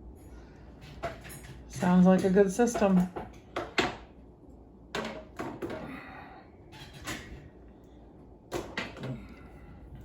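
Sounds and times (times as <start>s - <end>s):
dishes knocking and clinking: 1.0s - 4.1s, 4.9s - 5.9s.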